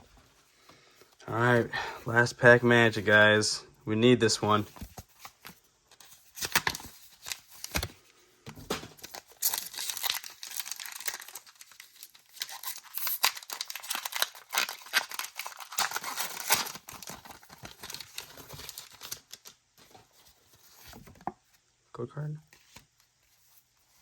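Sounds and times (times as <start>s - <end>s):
foil wrapper crinkling and tearing: 6.1s - 8.0s, 9.0s - 19.6s.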